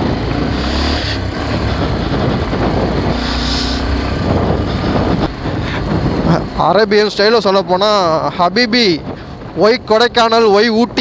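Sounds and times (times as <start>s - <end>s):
loud rushing noise: 0.0s - 6.4s
motorcycle engine running: 0.0s - 11.0s.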